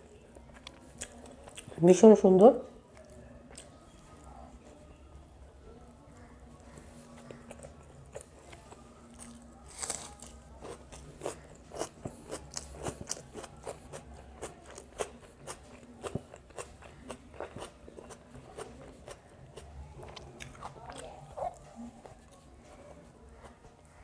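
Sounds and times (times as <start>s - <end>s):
person chewing crunchy food: 6.7s - 22.2s.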